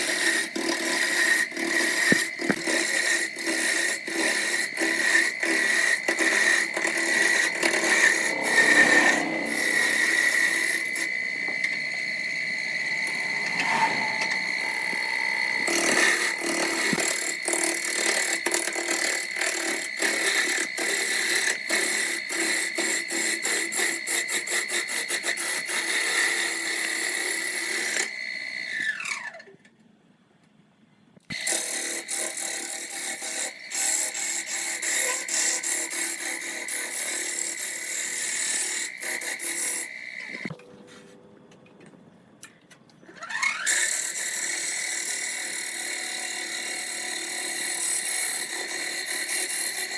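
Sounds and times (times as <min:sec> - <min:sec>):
power tool motor whine: 0:01.2 - 0:24.2.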